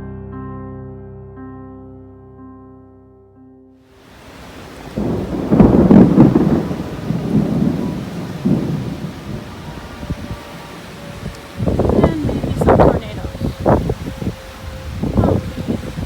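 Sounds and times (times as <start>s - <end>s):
steady rain: 3.9s - 16.0s
thunder rolling: 4.1s - 16.0s.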